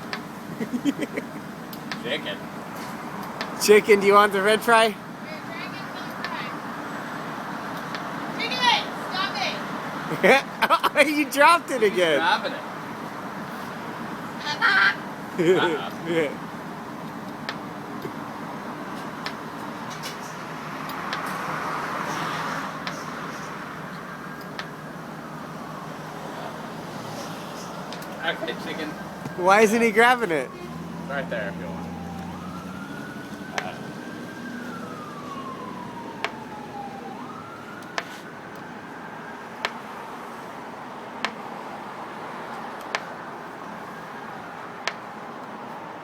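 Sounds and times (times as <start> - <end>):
slow wailing siren: 9.6 - 46.0.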